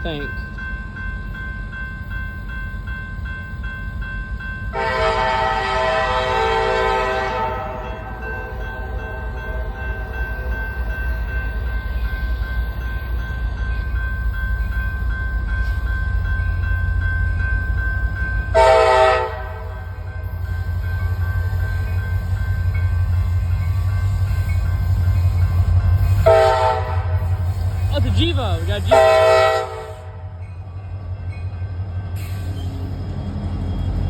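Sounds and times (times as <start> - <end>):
locomotive air horn: 4.8 - 7.8, 18.5 - 19.7, 26.2 - 27.4, 28.8 - 30.2.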